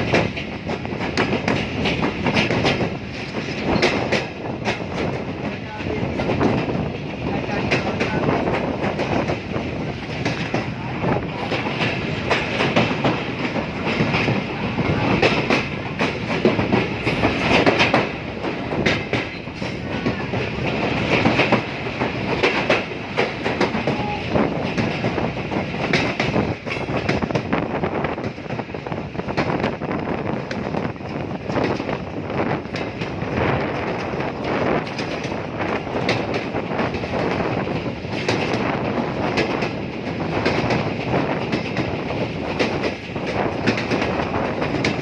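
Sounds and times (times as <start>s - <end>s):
train rumbling on track: 0.0s - 45.0s
wheels clacking over rails: 0.0s - 45.0s.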